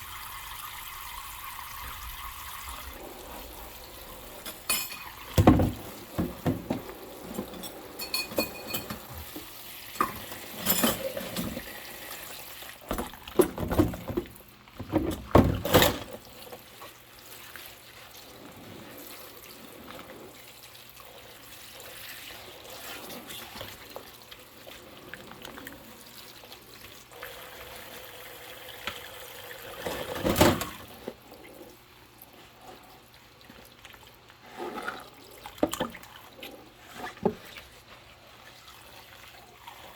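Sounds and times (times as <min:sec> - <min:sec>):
water running and splashing: 0:00.0 - 0:39.9
dishes clattering: 0:04.4 - 0:09.4, 0:10.0 - 0:11.7.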